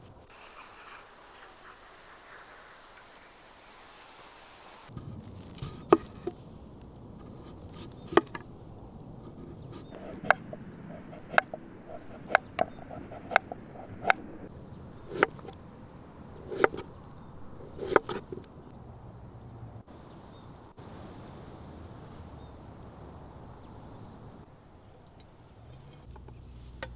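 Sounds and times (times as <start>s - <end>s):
sharp knocks: 7.3s - 8.5s, 9.2s - 15.6s, 16.4s - 18.5s.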